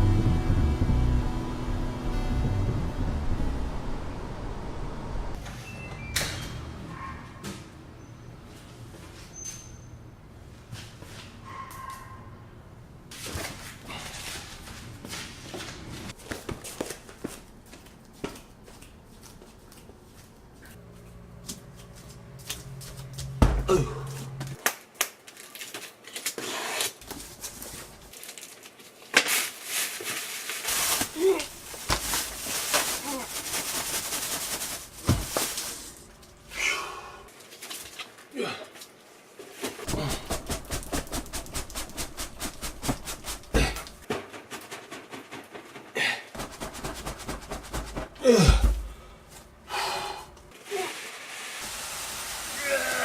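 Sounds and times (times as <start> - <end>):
low steady hum: 0.0 - 5.4
packaging rustling: 27.1 - 36.2.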